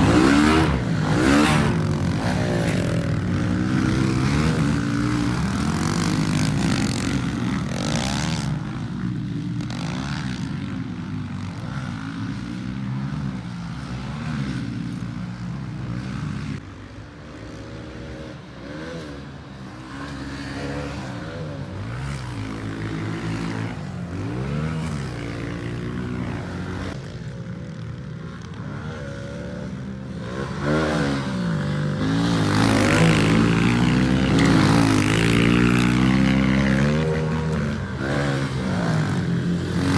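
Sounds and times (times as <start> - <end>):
pit bike engine revving: 0.0 - 13.2, 28.6 - 39.9.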